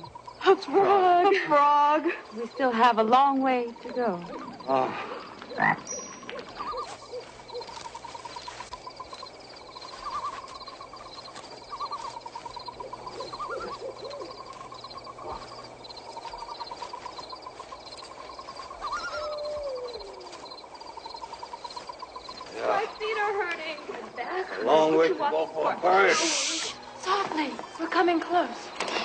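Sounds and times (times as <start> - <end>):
frogs and insects trilling: 0.0 - 29.0
owl hooting: 3.6 - 23.8.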